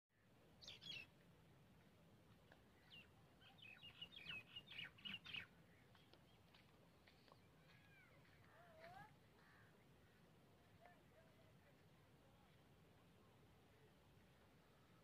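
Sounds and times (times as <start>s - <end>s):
small birds chirping: 0.2s - 1.2s, 2.5s - 10.3s.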